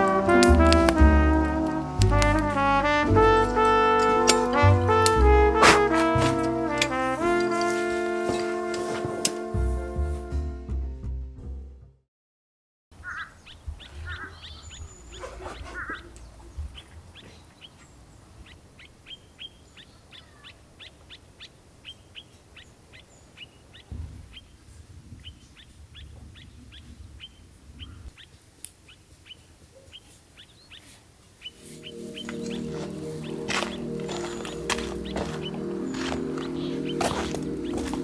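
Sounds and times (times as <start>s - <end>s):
bird chirping: 13.0s - 38.0s.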